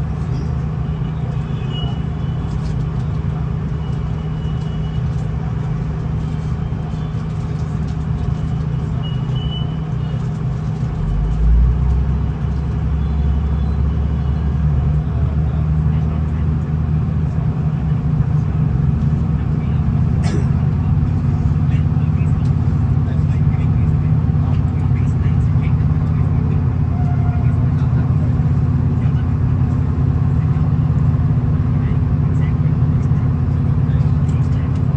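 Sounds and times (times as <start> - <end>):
diesel railcar engine hum: 0.0 - 34.9
wheels rumbling on rails: 0.0 - 34.9.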